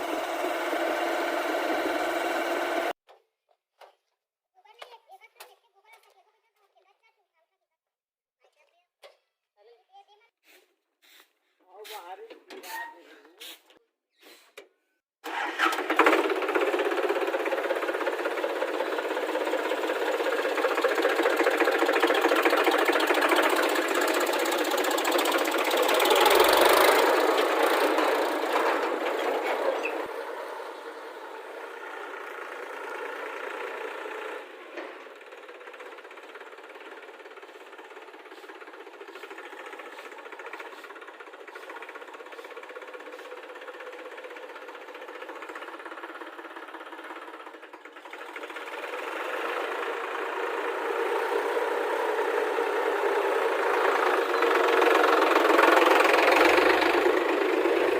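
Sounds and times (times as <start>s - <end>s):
heavy diesel engine running: 0.0s - 3.0s, 15.2s - 57.9s.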